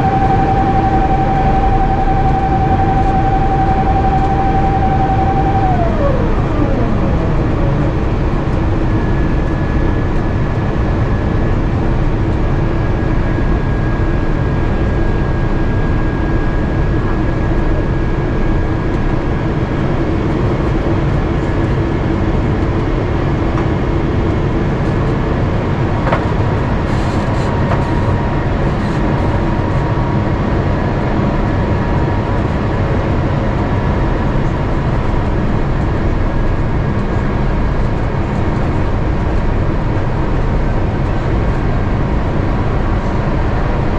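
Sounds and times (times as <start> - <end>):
falling whine: 0.0 - 10.7
airplane cabin roar: 0.0 - 43.9.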